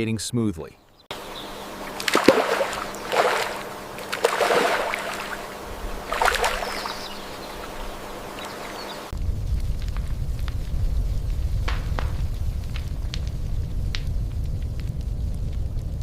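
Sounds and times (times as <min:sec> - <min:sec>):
steady background hiss: 0:00.3 - 0:09.1
water splashing and sloshing: 0:01.1 - 0:09.1
low rumble: 0:09.1 - 0:16.0.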